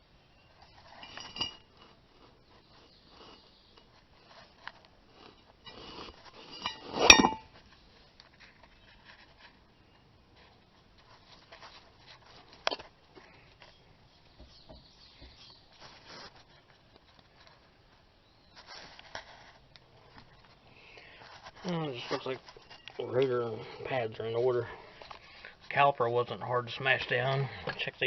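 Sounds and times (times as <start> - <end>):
metal parts and tools clinking: 0.9 - 1.8, 6.4 - 7.5.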